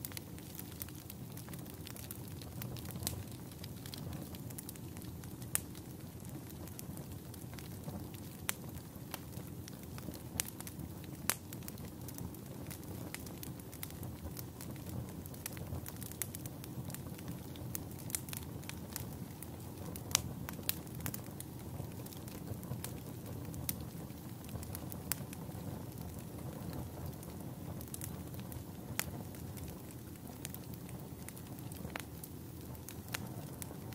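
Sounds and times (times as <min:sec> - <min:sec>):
burning wood crackling and popping: 0:00.0 - 0:33.9
campfire rumbling: 0:00.0 - 0:33.9.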